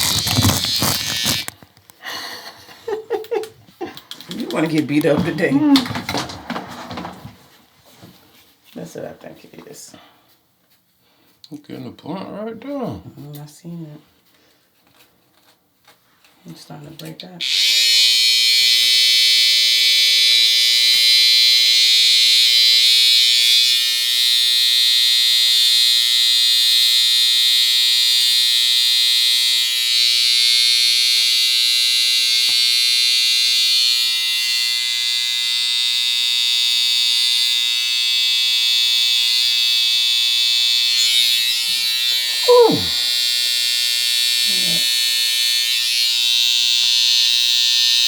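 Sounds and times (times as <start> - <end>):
electric hair clippers buzzing: 0.0 - 1.7, 17.4 - 48.0.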